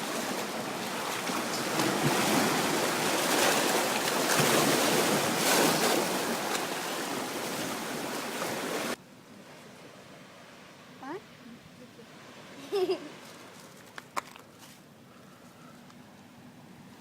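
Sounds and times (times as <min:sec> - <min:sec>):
waves washing onto shore: 0:00.0 - 0:10.8.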